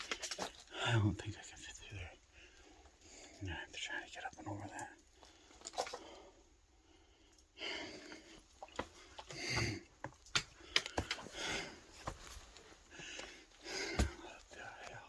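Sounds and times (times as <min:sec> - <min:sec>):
person breathing hard: 0:05.2 - 0:09.9, 0:10.5 - 0:14.5
knocks and scrapes against rock: 0:13.8 - 0:14.6.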